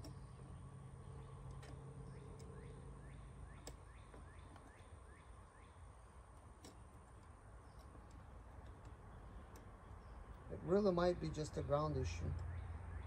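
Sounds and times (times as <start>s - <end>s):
faint bird chirps: 0.0s - 6.2s.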